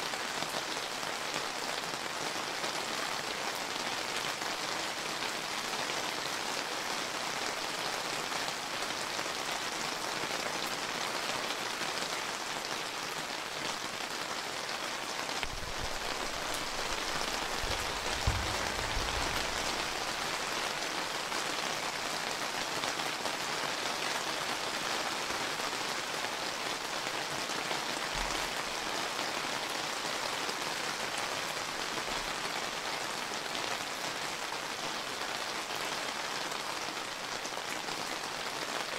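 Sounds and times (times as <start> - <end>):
rain pattering: 0.0 - 38.9
low thump: 15.5 - 19.9
sharp knock: 18.2 - 19.4.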